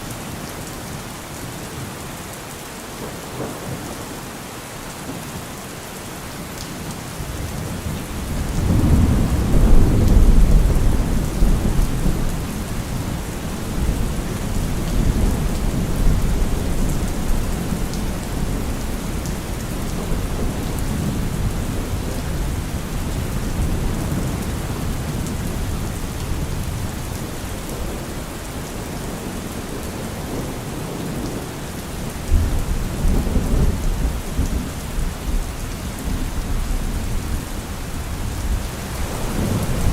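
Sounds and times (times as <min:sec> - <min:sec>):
rain on trees and leaves: 0:00.0 - 0:39.9
thunder rumbling: 0:07.8 - 0:28.3, 0:38.1 - 0:39.9.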